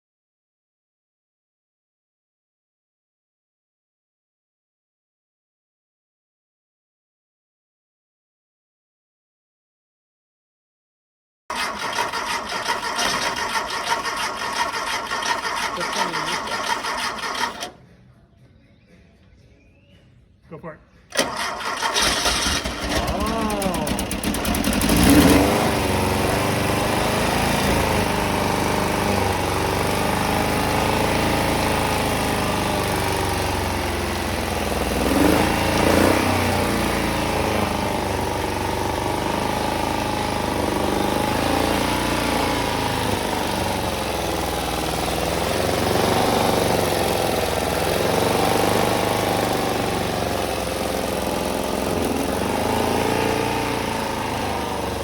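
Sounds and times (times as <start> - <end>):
car engine running unevenly: 21.2 - 55.0.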